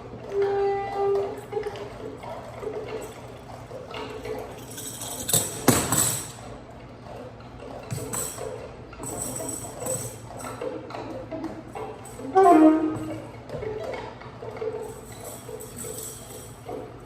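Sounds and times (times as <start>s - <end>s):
jingling rattling percussion: 4.4s - 6.4s, 7.9s - 17.0s.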